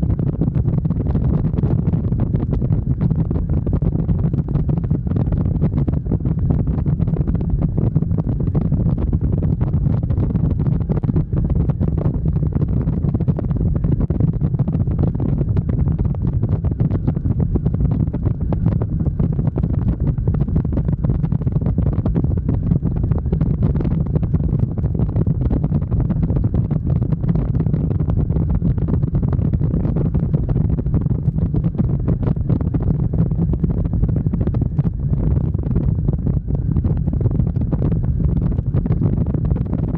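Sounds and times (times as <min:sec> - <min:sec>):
motorcycle engine and road rumble: 0:00.0 - 0:39.9
wind buffeting microphone: 0:00.0 - 0:39.9.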